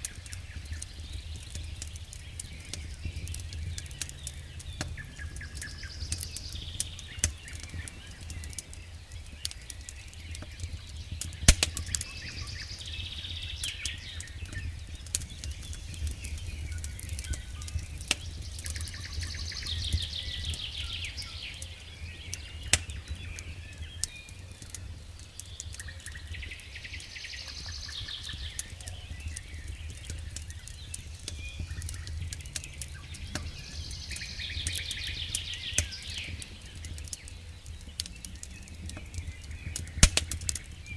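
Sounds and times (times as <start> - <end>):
campfire crackling and popping: 0.0 - 40.9
low rumble of burning wood: 0.0 - 40.9.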